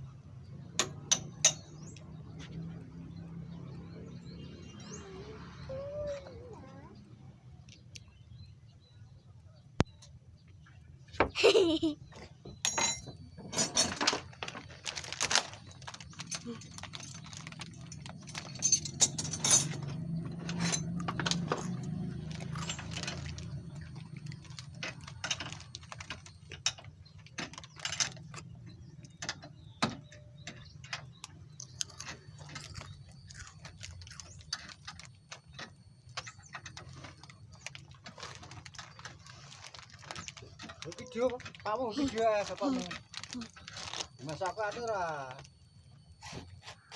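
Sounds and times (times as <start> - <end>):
metallic clicks and clinks of tools: 16.2 - 23.6.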